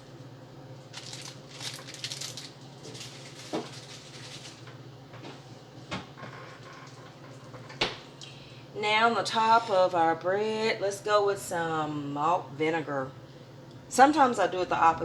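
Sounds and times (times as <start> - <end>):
steady low hum: 0.0 - 15.0
packaging rustling: 0.9 - 4.6.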